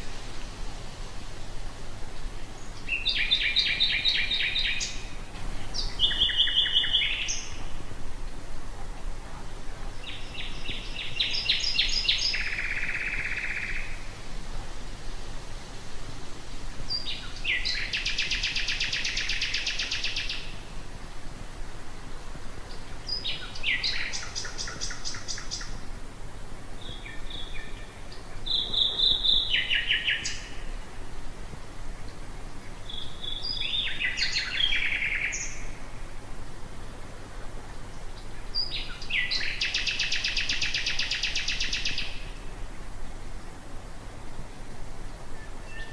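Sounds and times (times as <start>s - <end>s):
nightingale singing: 2.2s - 7.8s, 9.9s - 14.1s, 16.9s - 20.7s, 22.6s - 25.8s, 26.8s - 30.9s, 32.1s - 35.9s, 37.9s - 42.6s, 45.3s - 45.9s.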